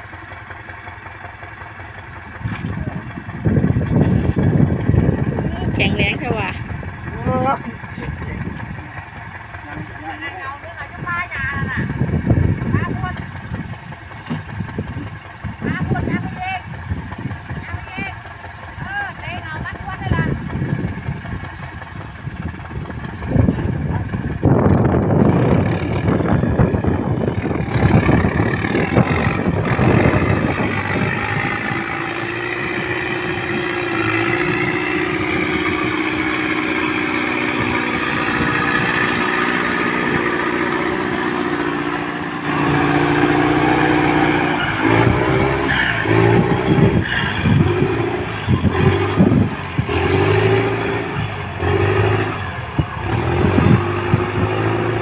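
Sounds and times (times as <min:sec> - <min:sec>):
tractor engine under load: 0:00.0 - 0:55.0.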